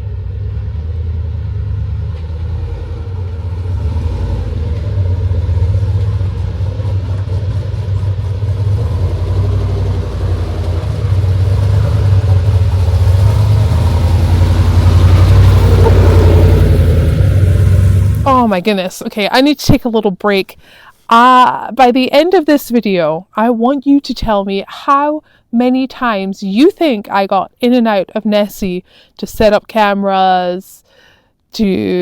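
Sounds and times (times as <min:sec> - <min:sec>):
vehicle engine rumbling under load: 0:00.0 - 0:18.7.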